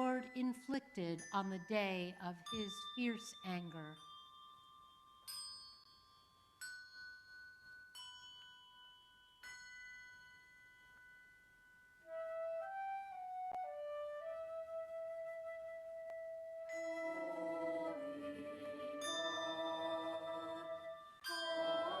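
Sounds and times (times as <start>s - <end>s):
soft flute melody: 12.0s - 22.0s.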